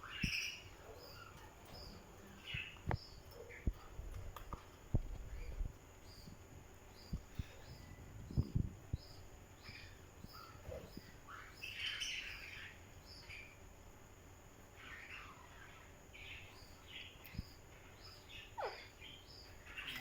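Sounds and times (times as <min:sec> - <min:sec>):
faint high chirp: 0:14.7 - 0:20.0
parrot chirping and squawking: 0:18.4 - 0:20.0.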